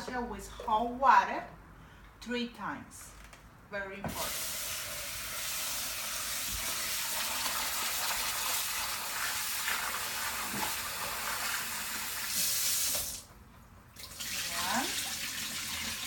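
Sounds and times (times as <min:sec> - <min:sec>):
water running into a container: 0:04.1 - 0:13.3, 0:14.0 - 0:16.0.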